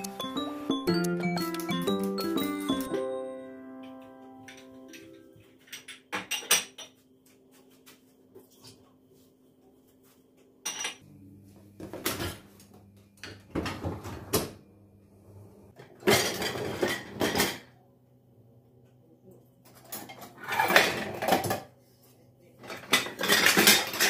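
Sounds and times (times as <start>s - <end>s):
dishes and cutlery clattering: 4.4s - 7.0s, 10.6s - 11.0s, 15.8s - 17.7s, 19.6s - 21.7s, 22.6s - 24.0s.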